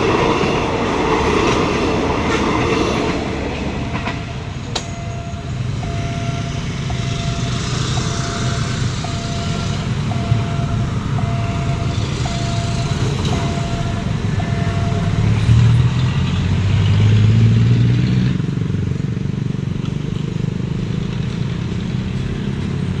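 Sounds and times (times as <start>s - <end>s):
engine and traffic noise: 0.0s - 23.0s
deep engine drone: 3.6s - 17.8s
level crossing signal beeping: 3.9s - 16.2s.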